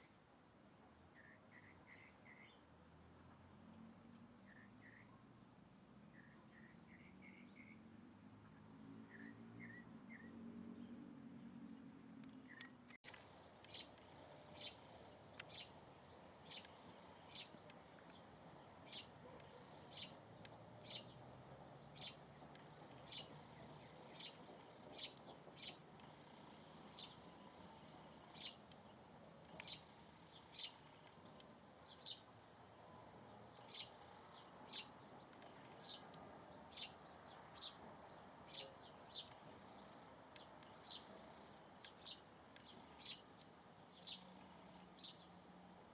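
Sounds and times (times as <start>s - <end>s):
faint background hiss: 0.0s - 45.9s
bird chirping: 1.2s - 2.7s, 4.4s - 5.2s, 6.1s - 45.4s.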